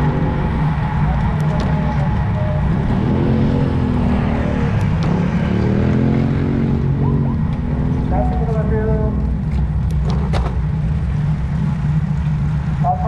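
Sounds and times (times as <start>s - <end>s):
vehicle engine passing: 0.0s - 13.0s.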